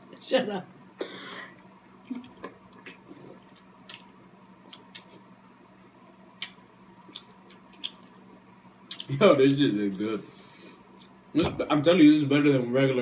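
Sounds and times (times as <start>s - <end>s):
faint steady hum: 0.0s - 13.0s
chewing: 2.0s - 5.3s, 6.3s - 8.3s.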